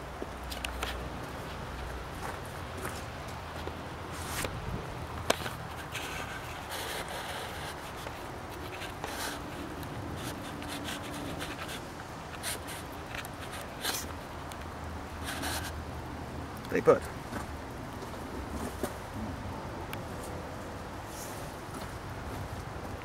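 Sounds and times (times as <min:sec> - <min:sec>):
rubbing and rustling: 0:05.2 - 0:14.3, 0:15.2 - 0:15.8.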